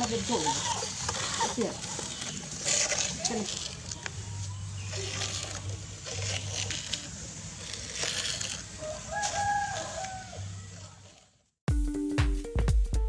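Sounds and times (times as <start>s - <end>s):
outdoor background noise: 0.0s - 11.6s
rooster crowing: 8.8s - 11.0s.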